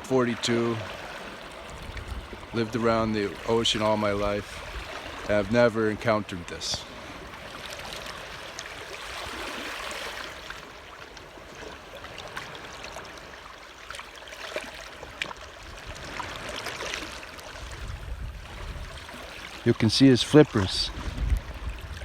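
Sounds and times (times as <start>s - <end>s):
seawater lapping and trickling: 0.0s - 22.0s
small splashes and drips: 6.8s - 17.8s.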